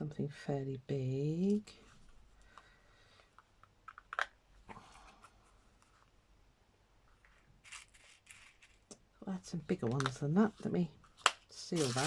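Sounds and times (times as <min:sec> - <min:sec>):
beads clicking and rustling: 0:07.3 - 0:09.0, 0:11.6 - 0:12.0.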